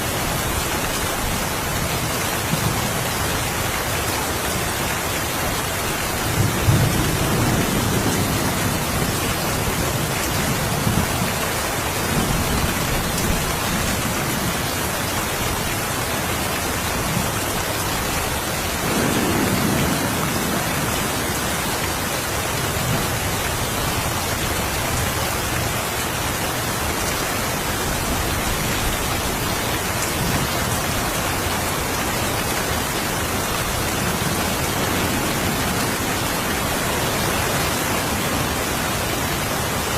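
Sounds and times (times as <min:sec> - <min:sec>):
steady rain: 0:00.0 - 0:39.9
low rolls of thunder: 0:18.8 - 0:21.5.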